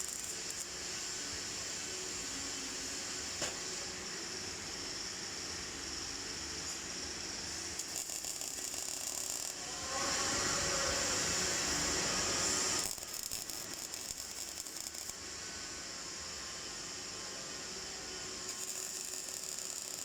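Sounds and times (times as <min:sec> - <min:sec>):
welding arc crackling: 0:00.0 - 0:00.8, 0:07.5 - 0:10.0, 0:10.9 - 0:15.2, 0:18.5 - 0:20.0.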